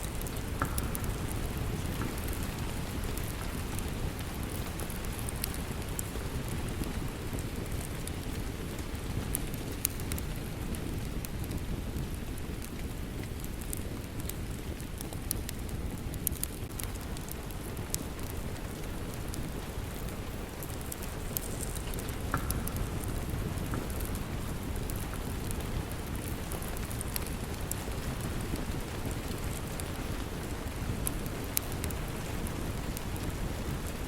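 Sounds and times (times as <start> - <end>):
steady rain: 0.0 - 34.0
wood fire crackling: 0.0 - 34.0.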